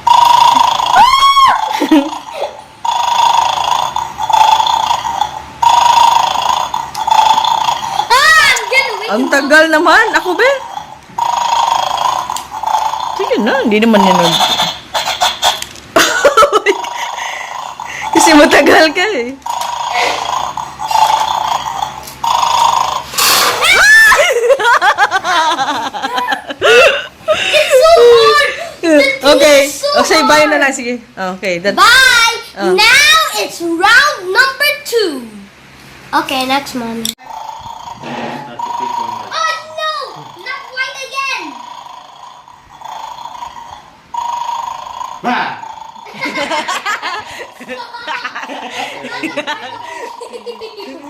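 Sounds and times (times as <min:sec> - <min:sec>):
high wavering cries: 0:00.0 - 0:12.3, 0:19.7 - 0:30.4, 0:37.2 - 0:51.0
buzzy electronic toy sound: 0:00.0 - 0:15.6, 0:37.2 - 0:46.6.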